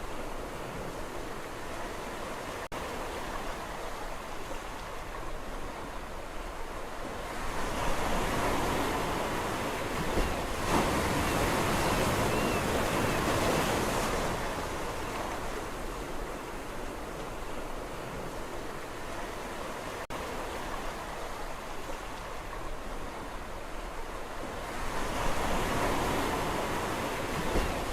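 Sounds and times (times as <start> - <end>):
sea waves breaking on shore: 0.0 - 27.9.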